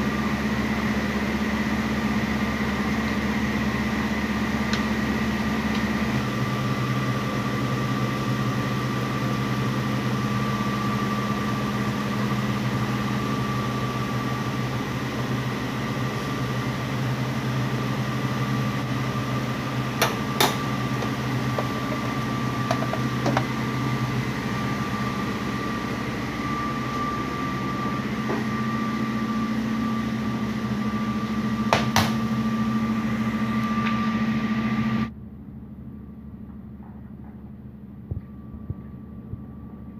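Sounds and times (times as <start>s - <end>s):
steady mechanical hum: 0.0s - 39.9s.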